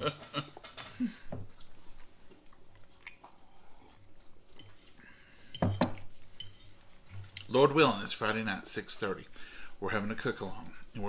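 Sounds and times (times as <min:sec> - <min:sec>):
people chewing: 0:00.0 - 0:07.5.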